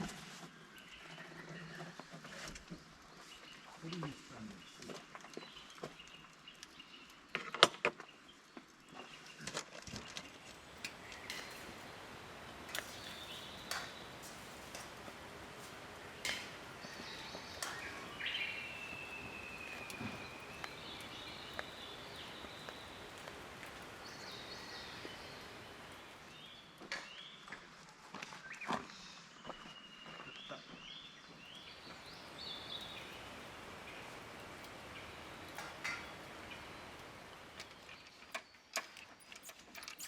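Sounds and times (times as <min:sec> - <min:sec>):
steady forest hiss: 0:00.0 - 0:07.5, 0:08.1 - 0:30.2, 0:30.8 - 0:40.0
drawn-out bird call: 0:10.3 - 0:26.4, 0:31.6 - 0:40.0.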